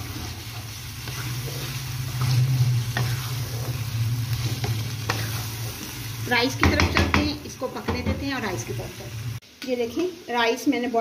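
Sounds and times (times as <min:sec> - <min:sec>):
food sizzling in a pan: 0:00.0 - 0:11.0
spatula tapping the pan: 0:06.6 - 0:08.3.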